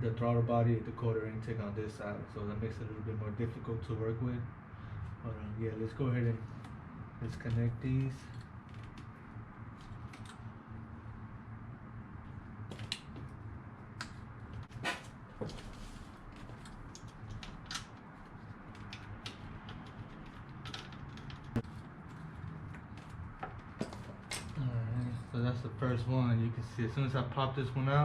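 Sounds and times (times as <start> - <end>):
clicks and knocks of hand work: 16.4 - 21.7.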